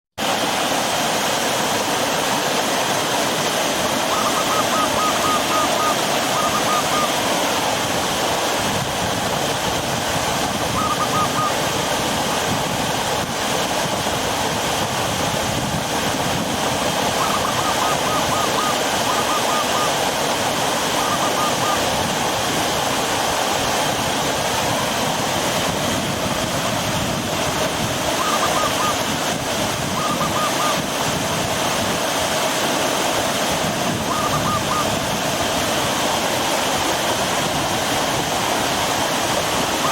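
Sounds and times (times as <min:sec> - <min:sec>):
water rushing over rocks: 0:00.1 - 0:39.9
bird call notes: 0:03.9 - 0:07.3, 0:10.7 - 0:11.8, 0:17.1 - 0:20.2, 0:20.8 - 0:22.1, 0:28.1 - 0:29.2, 0:29.9 - 0:30.8, 0:34.0 - 0:35.0.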